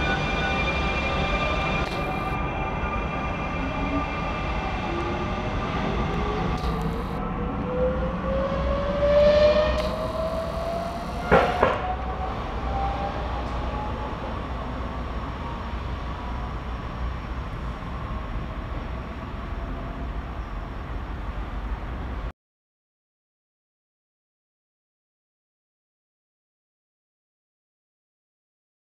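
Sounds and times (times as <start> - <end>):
steady rumble: 0.0 - 9.0, 9.6 - 22.3
motor whine rising in pitch: 0.0 - 14.2
sharp knocks: 11.2 - 11.9.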